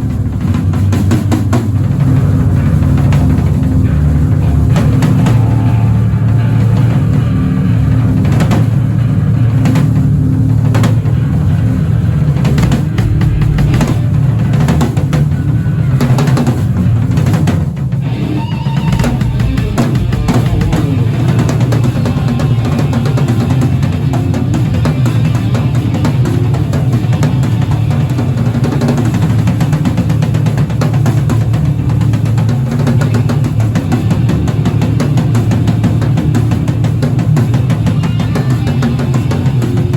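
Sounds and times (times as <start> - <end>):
loud band music: 12.4 - 15.6, 18.0 - 29.4, 34.0 - 39.9
kick and snare drum hits: 12.5 - 15.4.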